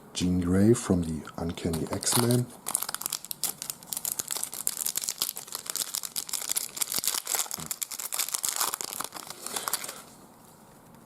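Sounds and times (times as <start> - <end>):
card pack wrapper crinkling: 1.4 - 10.2.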